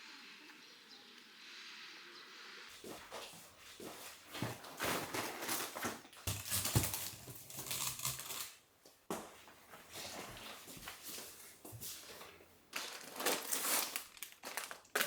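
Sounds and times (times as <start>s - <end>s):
rustling plastic packaging: 4.5s - 8.6s, 12.0s - 15.0s.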